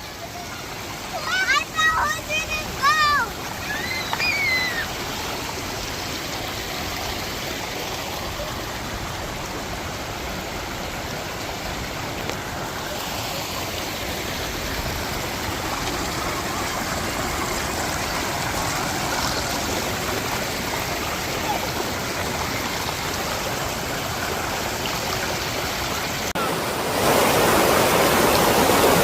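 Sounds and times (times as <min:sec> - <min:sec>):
river and waterfall rushing: 0:00.0 - 0:29.0.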